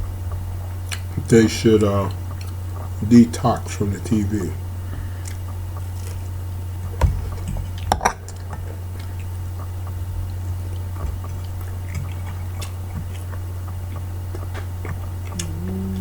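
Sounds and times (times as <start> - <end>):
steady low hum: 0.0 - 16.0
man chewing: 0.8 - 1.2, 2.3 - 2.6, 4.9 - 16.0.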